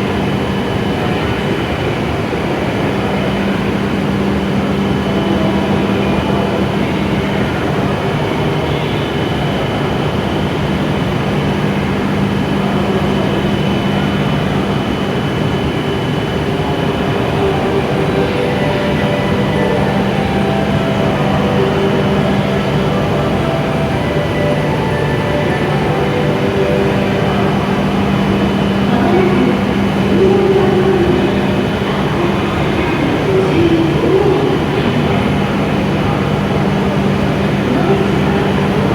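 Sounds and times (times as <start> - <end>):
faint high whine: 0.0 - 38.9
train equipment humming: 0.0 - 38.9.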